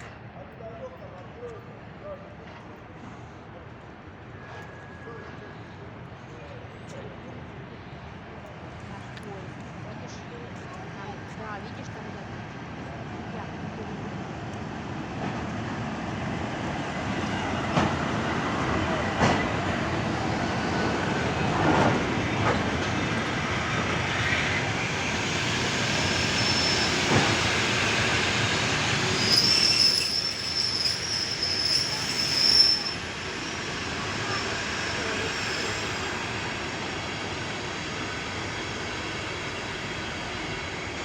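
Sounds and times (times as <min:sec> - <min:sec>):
train rumbling on rails: 0:00.0 - 0:41.0
high-pitched wheel squeal: 0:25.9 - 0:27.7, 0:28.8 - 0:36.1.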